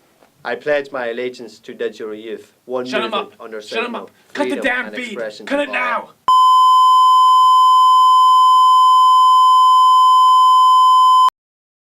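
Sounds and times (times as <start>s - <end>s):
loud steady sine tone: 6.3s - 11.3s.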